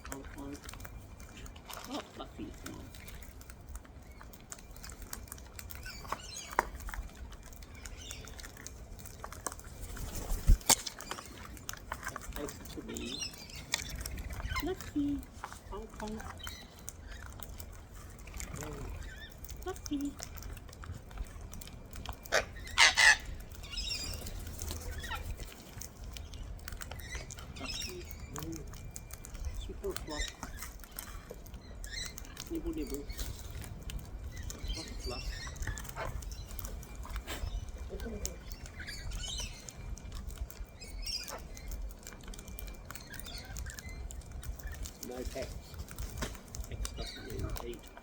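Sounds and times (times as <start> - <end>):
birds cracking seed: 0.0 - 48.0
faint bird calls: 0.0 - 48.0
cockatoo screeching: 22.2 - 24.0.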